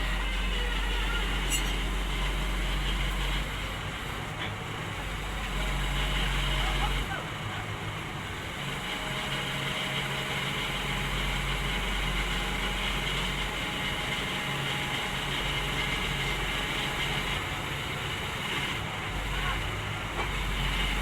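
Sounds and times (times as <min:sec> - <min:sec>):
diesel engine humming: 0:00.0 - 0:21.0.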